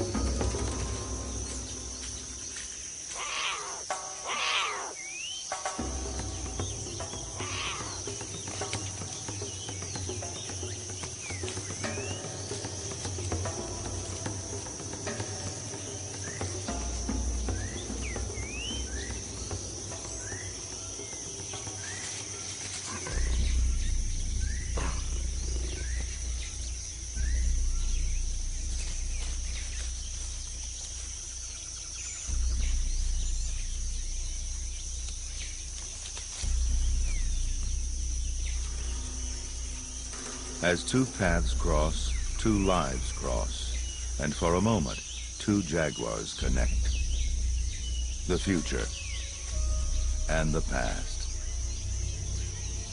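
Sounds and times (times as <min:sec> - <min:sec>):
deep low music notes: 0:00.0 - 0:03.1, 0:05.3 - 0:52.9
high insect drone: 0:00.0 - 0:52.9
rising bird chirps: 0:00.0 - 0:52.9.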